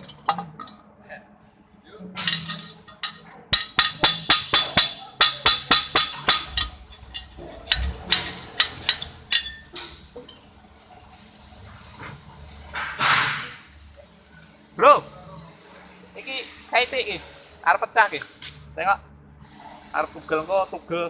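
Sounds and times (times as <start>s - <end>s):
hammer striking steel: 2.2s - 10.4s.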